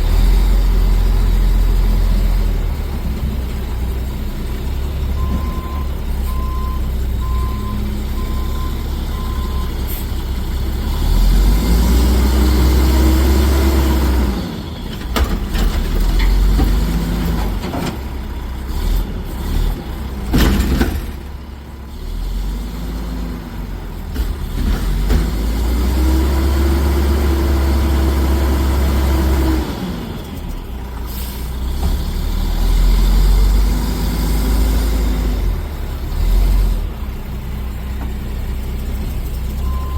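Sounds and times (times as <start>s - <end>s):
diesel engine revving: 0.0s - 39.9s
reverse alarm beeping: 5.2s - 9.7s, 39.6s - 39.9s
air brake hiss: 31.1s - 31.5s.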